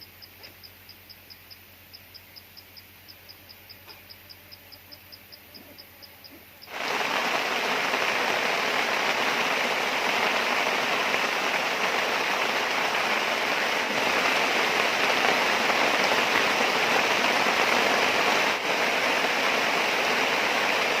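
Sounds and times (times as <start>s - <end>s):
steady rain falling: 6.6s - 21.0s.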